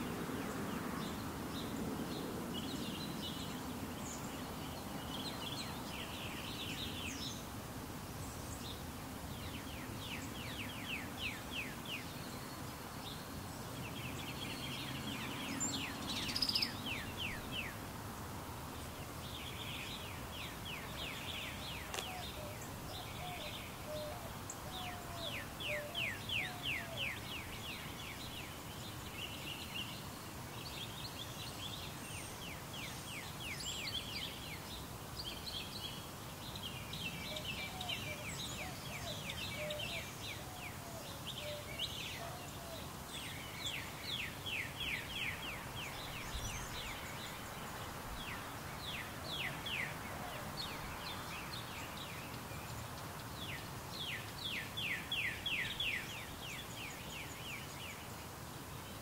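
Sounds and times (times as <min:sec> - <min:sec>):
steady hiss: 0:00.0 - 0:59.0
birds singing trills: 0:08.2 - 0:17.8, 0:18.7 - 0:59.0.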